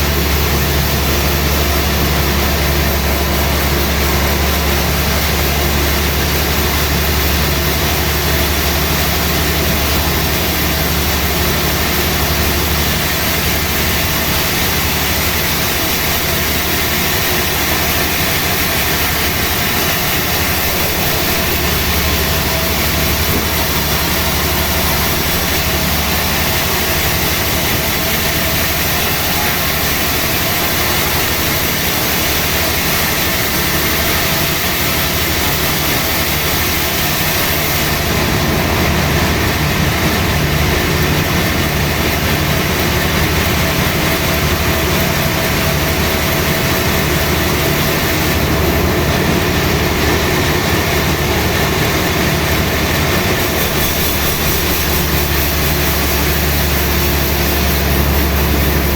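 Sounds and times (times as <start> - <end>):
sawmill machinery running: 0.0 - 58.9.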